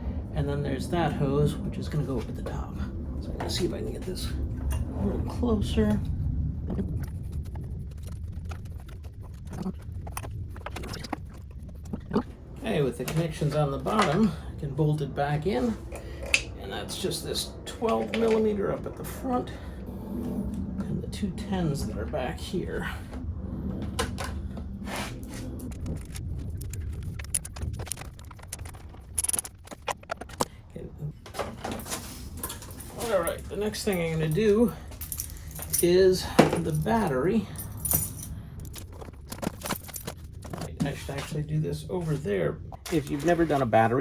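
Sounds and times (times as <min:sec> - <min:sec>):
steady low hum: 0:00.0 - 0:44.0
metallic clink: 0:33.9 - 0:38.4.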